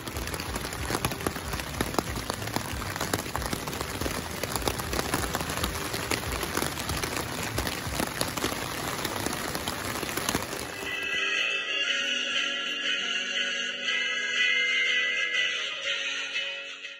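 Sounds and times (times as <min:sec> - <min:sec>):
rain pattering on tent fabric: 0:00.0 - 0:11.3.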